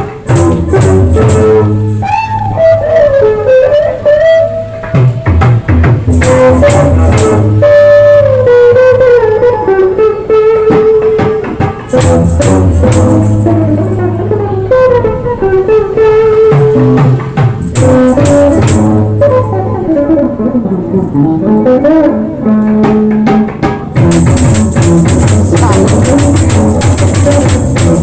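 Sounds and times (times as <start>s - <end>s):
rapid percussion: 0.0s - 9.0s, 10.7s - 15.0s, 16.2s - 19.6s, 22.6s - 28.0s
low bass line: 0.0s - 9.5s, 11.9s - 21.8s, 24.0s - 28.0s
person singing long notes: 17.8s - 23.5s.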